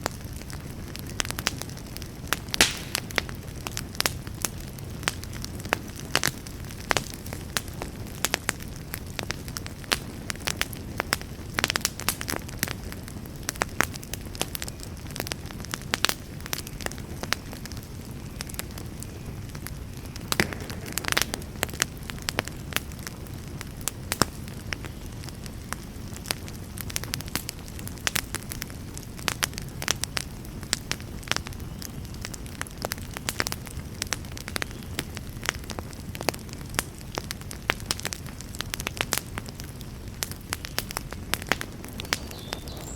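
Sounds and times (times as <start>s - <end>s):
fire crackling and popping: 0.0s - 42.9s.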